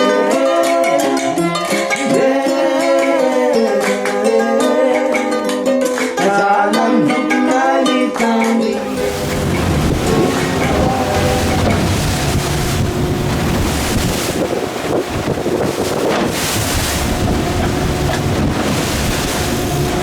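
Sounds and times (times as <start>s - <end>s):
person singing: 0.0s - 8.9s
wind and sea rushing: 8.8s - 20.0s.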